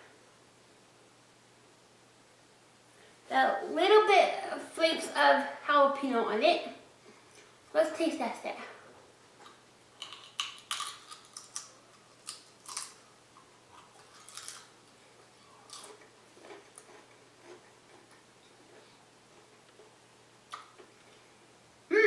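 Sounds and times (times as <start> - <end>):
potato crisp crunching: 9.4 - 21.2.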